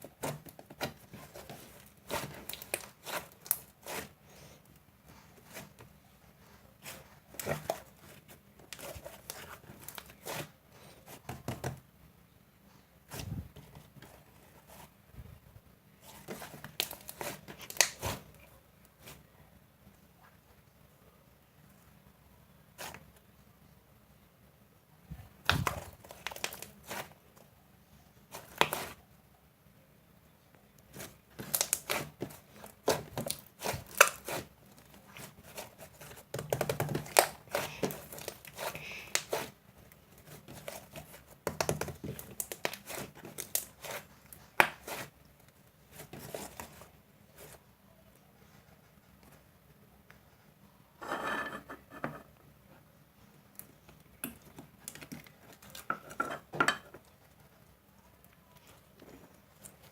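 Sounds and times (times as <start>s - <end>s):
slime crackling and popping: 16.4s - 18.2s, 31.0s - 34.5s, 35.2s - 45.1s.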